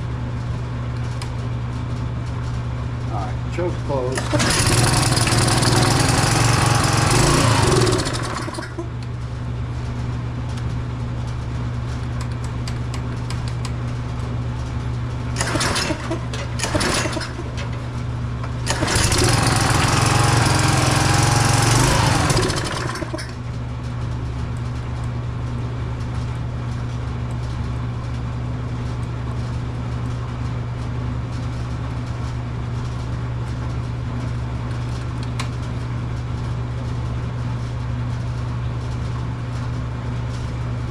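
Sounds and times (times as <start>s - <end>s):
pressure washer engine running: 4.2s - 8.9s, 15.4s - 17.7s, 18.6s - 23.4s.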